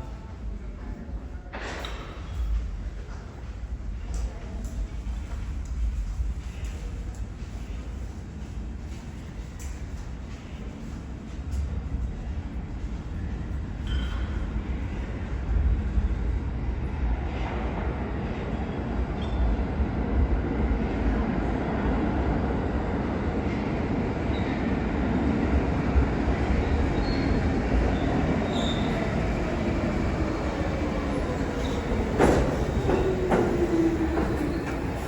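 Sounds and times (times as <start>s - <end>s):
subway train rumbling on rails: 0.0s - 35.0s.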